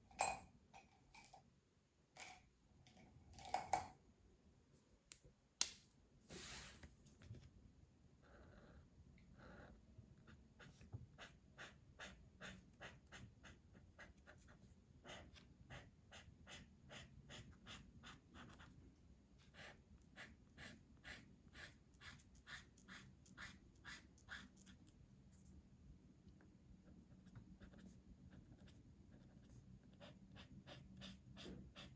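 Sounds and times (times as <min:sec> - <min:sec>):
pencil scratching on paper: 0:10.2 - 0:18.8, 0:19.4 - 0:24.8, 0:27.0 - 0:31.9.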